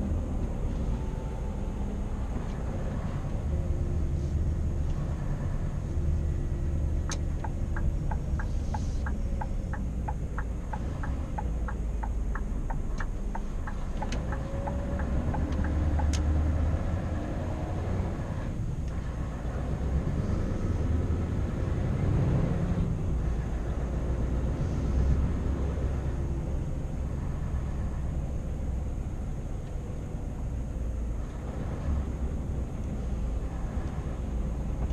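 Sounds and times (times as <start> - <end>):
diesel truck engine droning: 0.0 - 34.9
regular ticking: 7.0 - 16.3.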